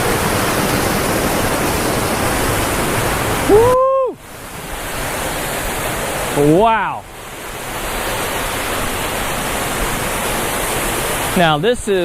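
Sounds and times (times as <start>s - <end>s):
waterfall rushing: 0.0s - 12.0s
man exclaiming woo: 3.5s - 4.2s.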